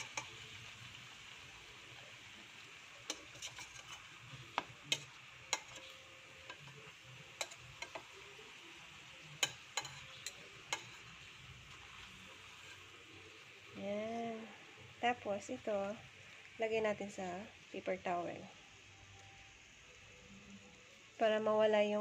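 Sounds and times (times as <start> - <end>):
metal tongs tapping a pan: 0.0 - 0.5, 3.0 - 8.4, 9.2 - 12.8
banana sizzling in hot oil: 0.0 - 22.0.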